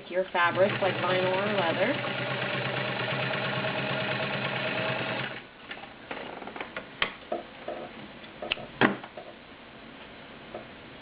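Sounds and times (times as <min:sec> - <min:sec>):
sewing machine stitching: 0:00.4 - 0:05.4.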